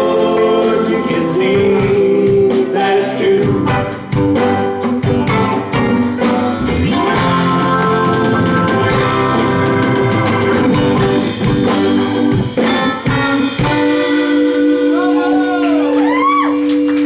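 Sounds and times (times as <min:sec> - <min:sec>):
live rock band playing: 0:00.0 - 0:17.0
heavy drum hits: 0:03.5 - 0:14.0.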